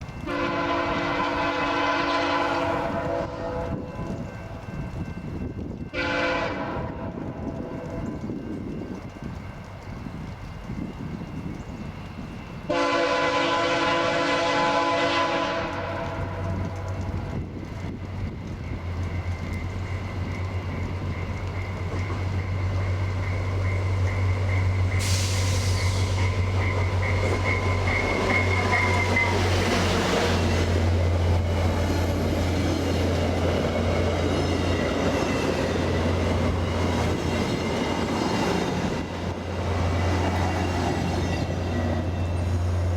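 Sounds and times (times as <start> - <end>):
train rumbling through station: 0.0 - 42.9
high squeal of wheels or brakes: 19.1 - 30.0
sharp hiss: 24.9 - 26.5.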